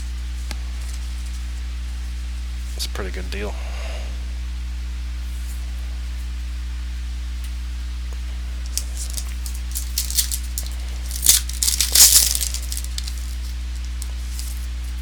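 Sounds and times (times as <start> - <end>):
low electrical hum: 0.0 - 15.0
wrapper crinkling and tearing: 8.7 - 14.7.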